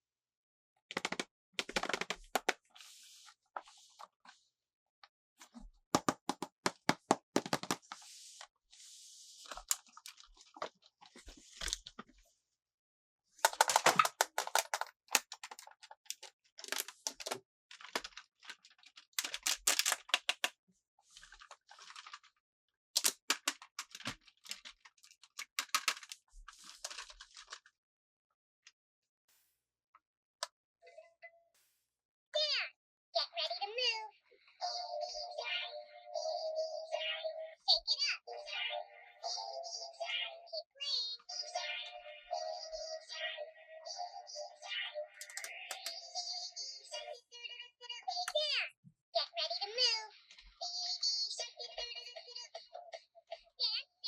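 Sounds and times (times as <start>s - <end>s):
toy packaging crinkling: 9.4s - 12.0s, 13.4s - 22.4s, 23.0s - 27.7s, 43.9s - 47.1s.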